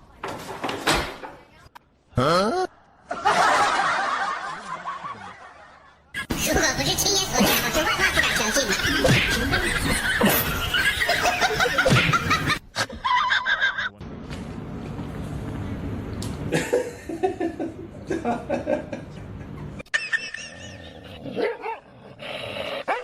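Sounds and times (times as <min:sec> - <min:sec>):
people laughing loudly: 0:03.0 - 0:06.3, 0:07.4 - 0:14.0.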